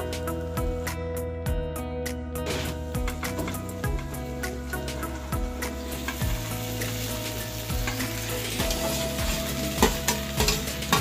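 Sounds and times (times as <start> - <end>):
vegetables sizzling in hot oil: 2.5 - 11.0.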